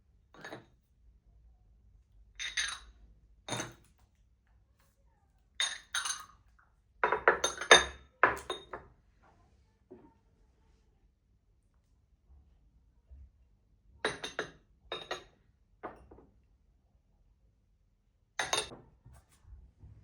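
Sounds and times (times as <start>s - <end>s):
dishes clinking: 3.5s - 3.8s, 7.0s - 8.8s, 14.1s - 15.3s, 18.4s - 18.8s.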